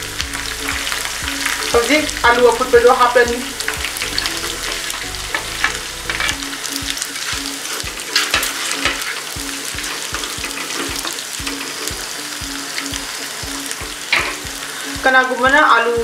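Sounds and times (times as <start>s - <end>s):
electronic music beat: 0.0s - 16.0s
potatoes sizzling in oil: 0.0s - 16.0s
spatula scraping pan: 0.5s - 15.0s.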